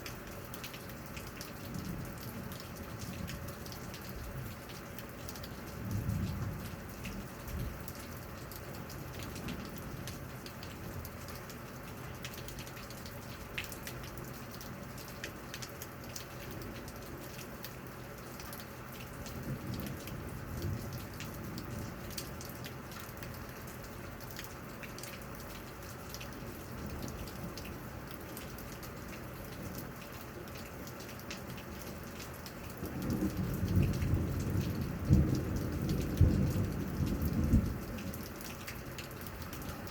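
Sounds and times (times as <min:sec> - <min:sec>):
raindrop clicks: 0:00.0 - 0:39.9
steady rain falling: 0:00.0 - 0:39.9
thunder rumbling: 0:32.8 - 0:38.1.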